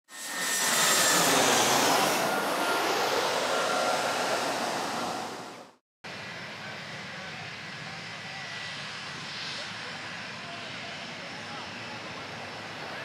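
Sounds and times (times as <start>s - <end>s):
jet engines rushing with whine: 0.1s - 13.0s.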